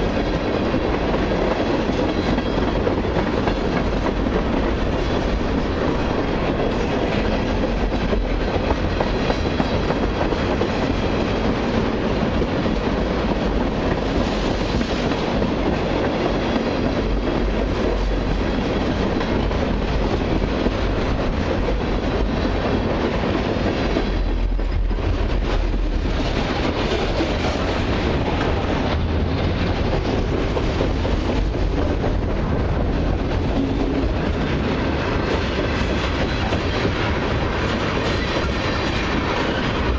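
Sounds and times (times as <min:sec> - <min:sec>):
freight train wheels rumbling on rails: 0:00.0 - 0:39.9.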